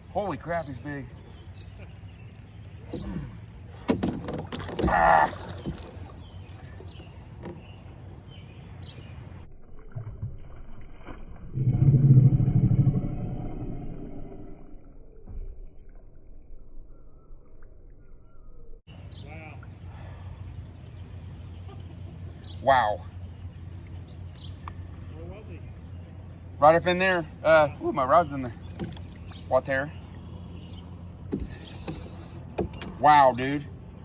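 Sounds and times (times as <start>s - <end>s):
water splashing against hull: 1.8s - 8.0s, 9.4s - 12.4s, 28.5s - 30.5s
low hollow rumble: 9.3s - 18.8s.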